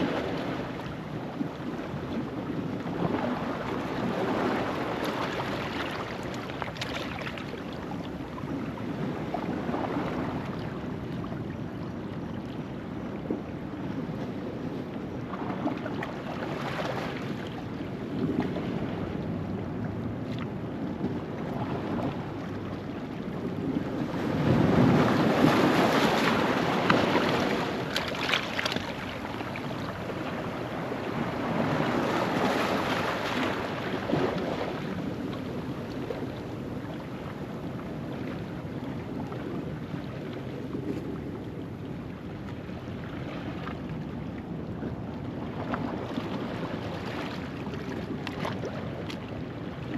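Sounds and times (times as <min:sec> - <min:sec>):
ocean waves on rocky shore: 0:00.0 - 0:07.8, 0:23.9 - 0:41.2.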